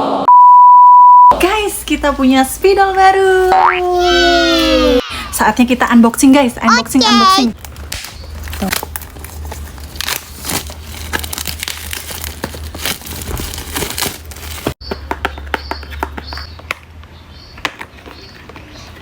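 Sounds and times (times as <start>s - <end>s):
packaging rustling and crackling: 7.6s - 14.8s.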